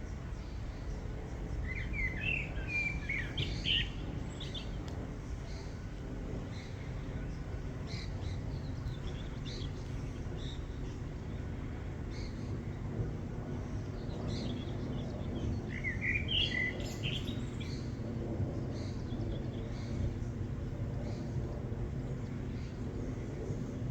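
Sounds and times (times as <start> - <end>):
small birds chirping: 13.8 - 17.9.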